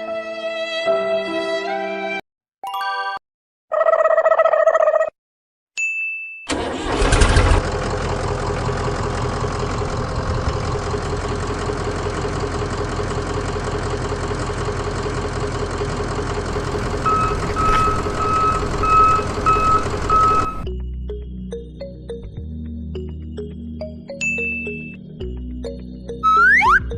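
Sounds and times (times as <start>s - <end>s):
vehicle engine running: 6.5s - 20.7s
reversing beeper: 16.6s - 20.7s, 26.2s - 26.9s.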